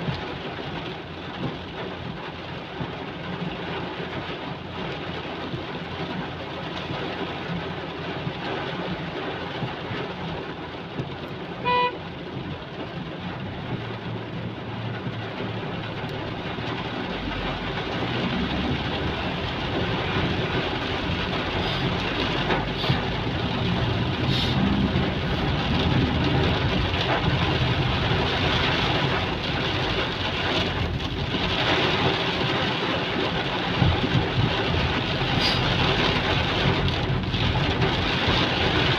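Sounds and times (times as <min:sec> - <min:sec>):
heavy rain on street: 0:00.0 - 0:38.9
traffic passing through water: 0:00.0 - 0:38.9
vehicle engine: 0:00.0 - 0:38.9
car horn toot: 0:11.6 - 0:12.1.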